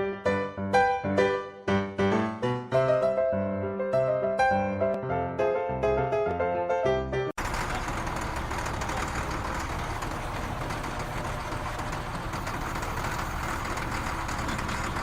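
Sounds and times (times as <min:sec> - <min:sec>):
piano music: 0:00.0 - 0:07.4.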